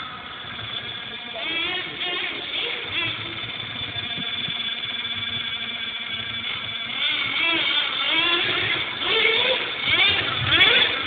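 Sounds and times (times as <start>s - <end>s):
rc car motor whining: 0.0s - 11.0s.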